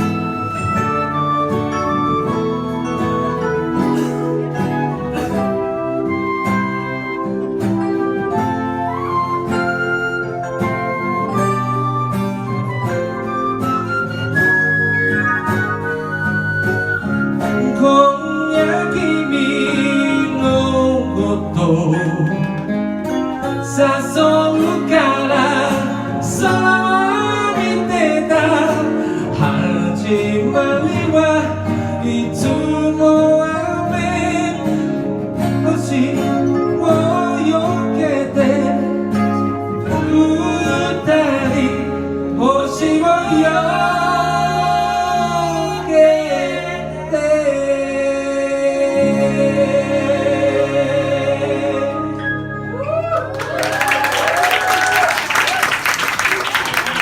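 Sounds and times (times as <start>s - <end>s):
pop backing track: 0.0s - 54.2s
person singing: 17.5s - 22.7s, 23.4s - 53.1s
applause: 53.0s - 57.0s.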